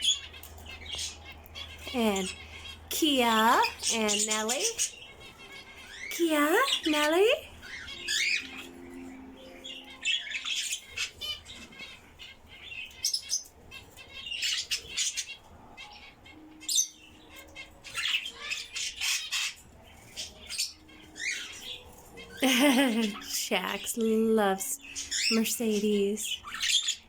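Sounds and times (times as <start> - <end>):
caged birds chirping and squawking: 0.0 - 27.0.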